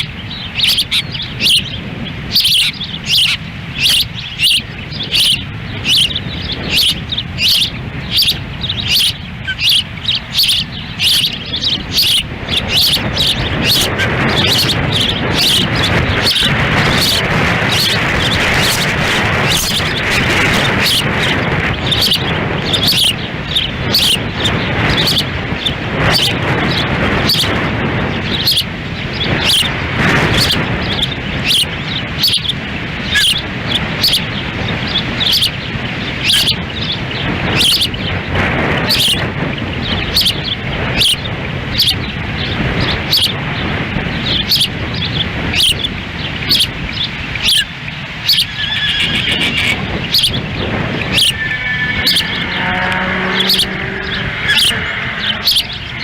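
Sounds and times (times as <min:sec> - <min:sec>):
osprey chirping calls: 0:00.0 - 0:56.0
wind on microphone: 0:00.0 - 0:56.0.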